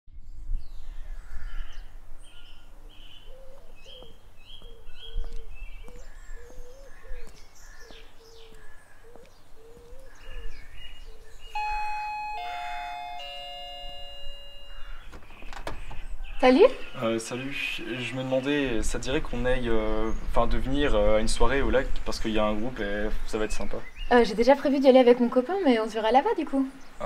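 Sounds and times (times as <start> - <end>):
birds chirping: 0.6 - 27.0
doorbell chime: 11.5 - 15.1
wavering bird call: 11.5 - 15.2.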